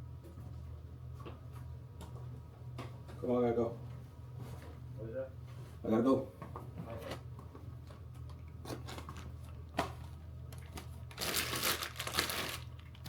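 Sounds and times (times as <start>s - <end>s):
plastic rustling and crinkling: 8.6s - 13.0s.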